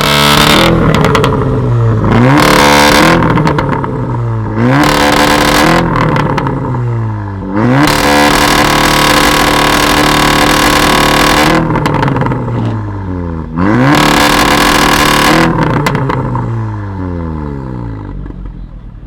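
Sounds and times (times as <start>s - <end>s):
exhaust crackles and pops: 0.0s - 6.7s, 7.6s - 12.8s, 13.8s - 16.5s
car engine revving: 0.0s - 18.5s.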